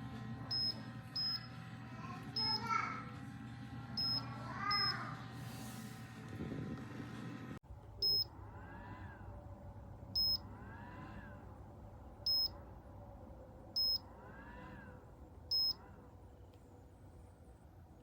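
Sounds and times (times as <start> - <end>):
short high electronic beeps: 8.0 - 8.3, 10.2 - 10.4, 12.3 - 12.5.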